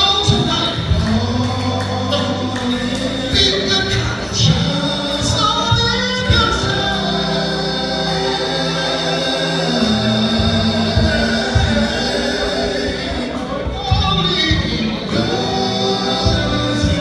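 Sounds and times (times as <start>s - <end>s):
choir singing gospel: 0.0s - 17.0s
steady bass line: 0.0s - 17.0s.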